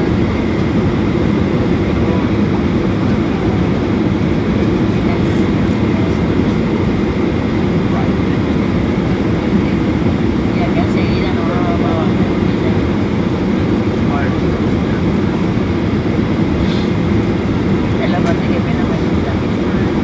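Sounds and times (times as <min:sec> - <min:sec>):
aircraft cabin engine rumble: 0:00.0 - 0:20.0.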